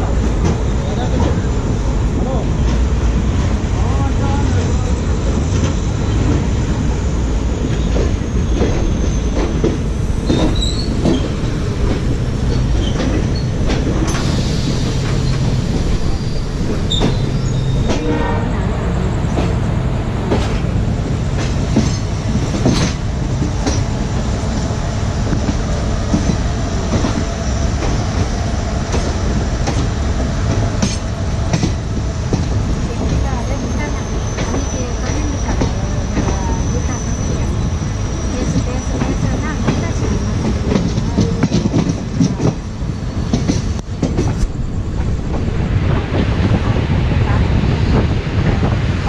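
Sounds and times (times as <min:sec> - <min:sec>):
train wheels rumbling: 0:00.0 - 0:49.0
high wheel squeal: 0:10.2 - 0:11.8, 0:12.5 - 0:18.5, 0:33.3 - 0:40.7.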